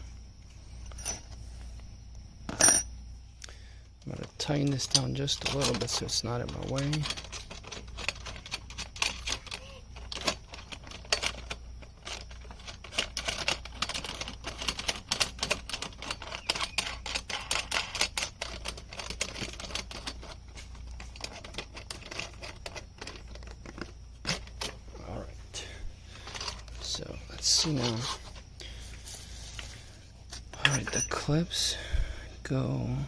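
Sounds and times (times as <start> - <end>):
metal hardware clicking and knocking: 2.5 - 2.9, 4.0 - 24.8, 30.3 - 31.5.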